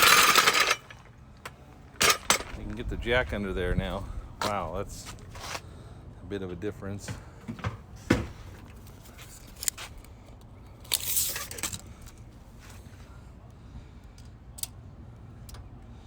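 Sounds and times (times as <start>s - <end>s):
scraping rustling: 7.0s - 10.1s.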